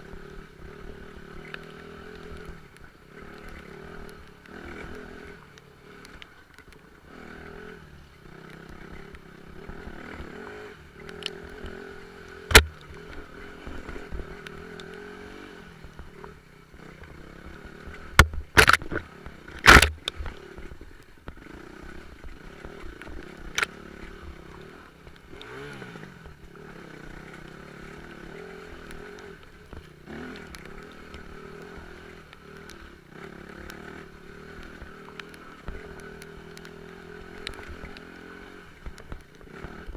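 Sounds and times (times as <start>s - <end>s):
off-road motorcycle engine running: 0.0s - 39.9s
sharp knocks and clatters: 12.5s - 12.9s, 18.1s - 20.3s.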